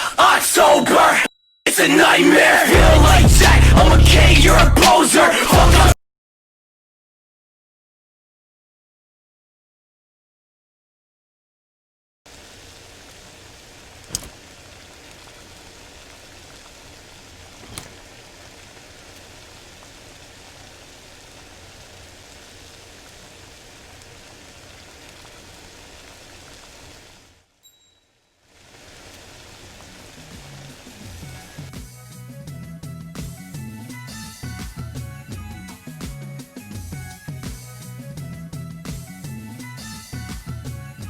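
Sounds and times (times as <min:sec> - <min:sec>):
steady hiss: 0:12.3 - 0:27.6, 0:28.4 - 0:41.0
sharp cracks: 0:13.0 - 0:21.1.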